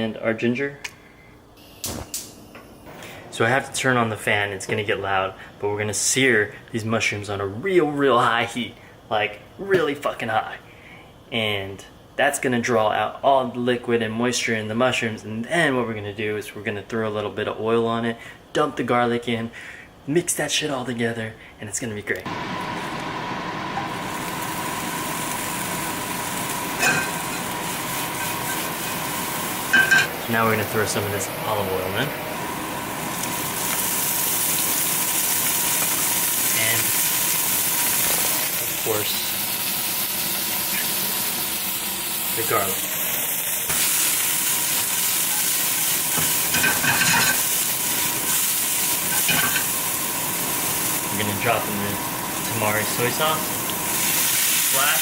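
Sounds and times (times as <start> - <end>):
range hood fan rushing: 2.9 - 11.8, 22.2 - 55.0
food sizzling in a pan: 22.3 - 55.0.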